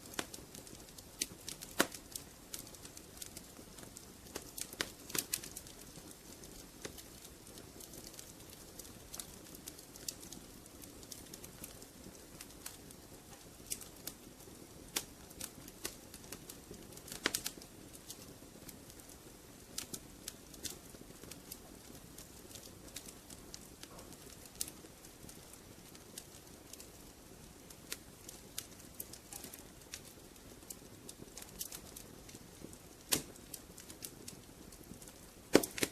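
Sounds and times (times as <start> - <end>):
hiss of flames: 0.0 - 35.9
wood fire crackling: 0.0 - 35.9.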